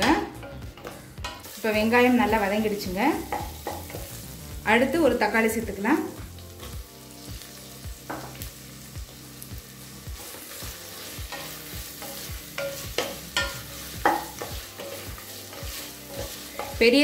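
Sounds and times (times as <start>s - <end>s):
spatula scraping and knocking pot: 0.0s - 1.6s, 11.1s - 16.9s
onions and tomato sizzling: 0.0s - 17.0s.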